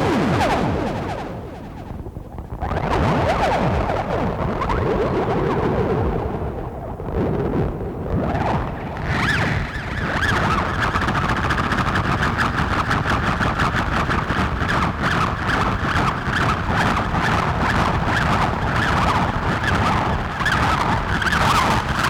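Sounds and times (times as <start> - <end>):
rumbling synthesizer noise drone: 0.0 - 9.0.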